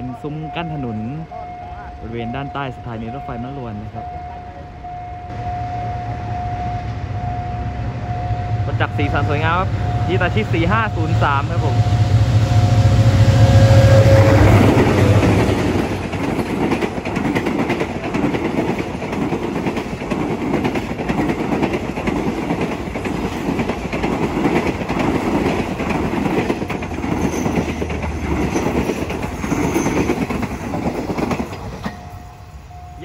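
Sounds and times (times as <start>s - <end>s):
locomotive engine hum: 2.7s - 33.0s
wheels clicking over rail joints: 14.6s - 32.6s.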